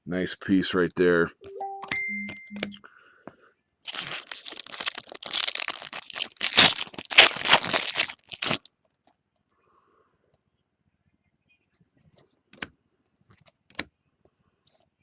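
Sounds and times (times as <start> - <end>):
foil pack tearing and crinkling: 3.9 - 8.7.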